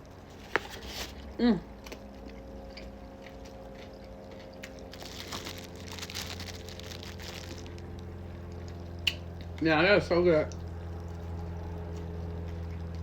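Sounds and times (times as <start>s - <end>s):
person chewing food: 0.1s - 9.6s, 10.5s - 13.0s.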